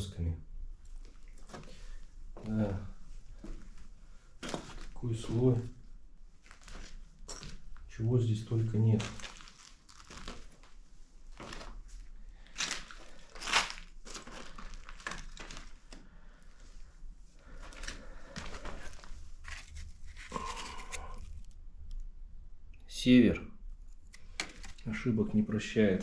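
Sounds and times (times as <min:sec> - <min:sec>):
dry debris crunching: 0:08.8 - 0:16.1, 0:17.4 - 0:21.6.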